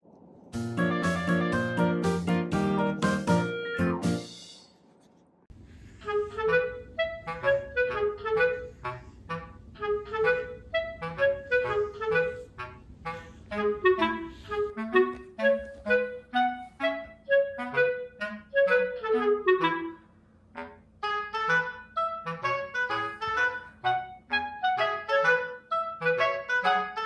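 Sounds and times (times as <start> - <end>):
light bouncy background music: 0.6 - 4.6.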